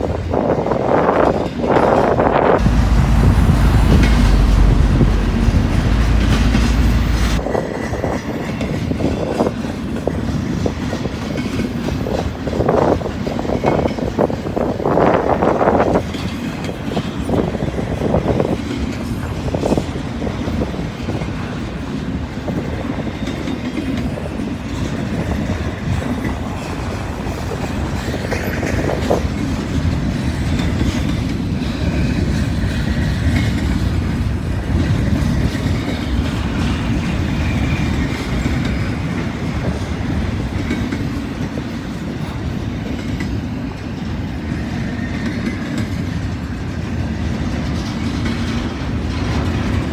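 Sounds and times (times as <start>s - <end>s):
freight train wheels clattering: 0.0s - 49.9s
train knocks: 0.3s - 49.9s.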